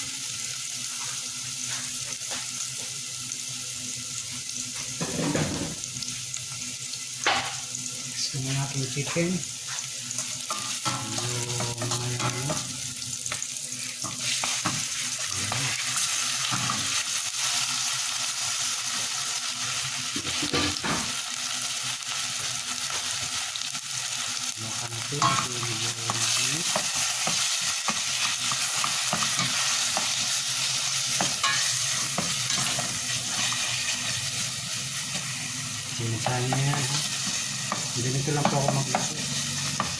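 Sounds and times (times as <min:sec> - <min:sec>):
chicken sizzling in a pan: 0:00.0 - 0:39.9
spatula scraping a pan: 0:09.6 - 0:17.0, 0:26.1 - 0:35.5.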